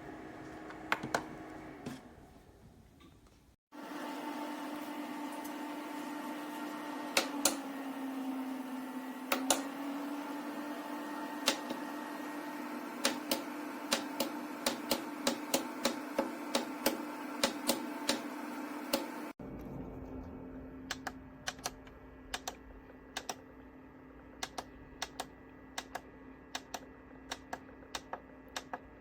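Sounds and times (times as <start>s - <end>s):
sharp clicks: 20.9s - 22.6s, 23.2s - 23.4s, 24.4s - 28.8s.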